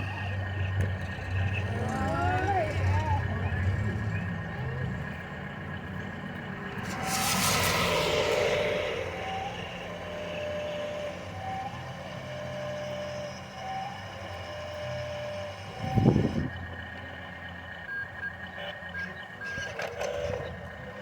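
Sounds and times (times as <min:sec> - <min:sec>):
simulated truck engine running: 0:00.0 - 0:21.0
brief loud burst: 0:06.8 - 0:13.2.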